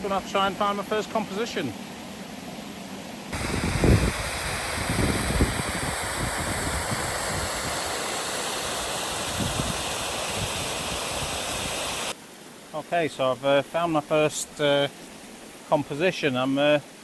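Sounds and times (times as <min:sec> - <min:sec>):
waterfall rushing: 0:03.3 - 0:12.2.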